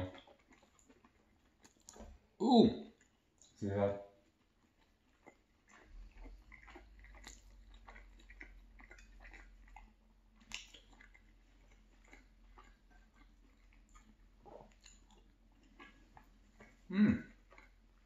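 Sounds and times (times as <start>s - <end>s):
person chewing food: 0.0s - 3.6s, 4.2s - 18.0s
wet mouth clicks: 1.6s - 2.1s, 5.3s - 11.2s.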